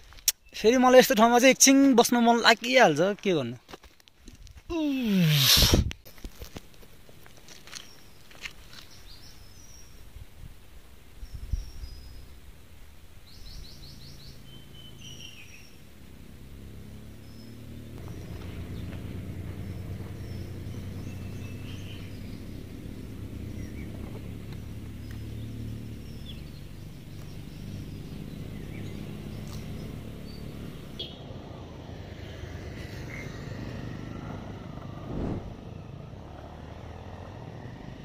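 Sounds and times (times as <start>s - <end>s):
motorcycle engine running: 13.6s - 32.1s.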